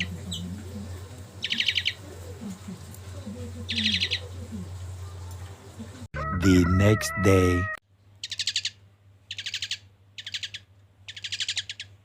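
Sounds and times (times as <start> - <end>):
songbird chattering: 0.0 - 2.9, 3.6 - 5.2, 8.2 - 12.0.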